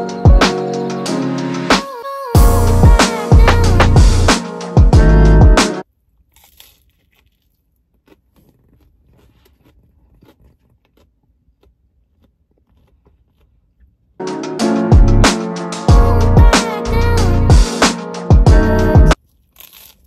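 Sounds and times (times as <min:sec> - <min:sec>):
background music: 0:00.0 - 0:05.8, 0:14.2 - 0:19.2
person chewing crunchy food: 0:06.0 - 0:14.2, 0:19.2 - 0:20.0.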